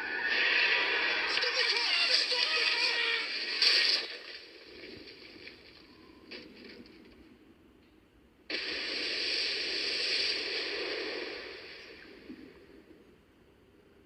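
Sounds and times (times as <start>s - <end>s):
loud static hiss: 8.3s - 14.0s.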